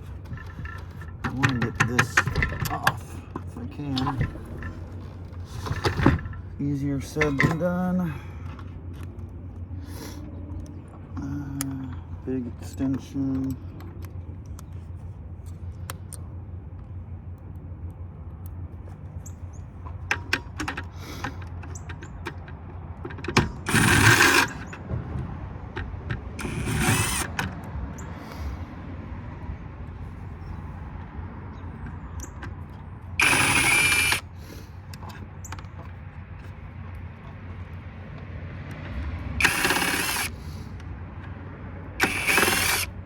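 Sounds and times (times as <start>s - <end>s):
tool and metal parts clicking: 0.0s - 7.9s, 19.2s - 24.8s, 25.8s - 28.1s, 31.8s - 36.5s, 38.7s - 41.4s, 42.0s - 43.0s
steady low hum: 0.0s - 43.0s
power driver motor bursts: 23.4s - 24.8s, 26.4s - 27.6s, 33.2s - 34.9s, 39.4s - 40.8s, 42.0s - 43.0s.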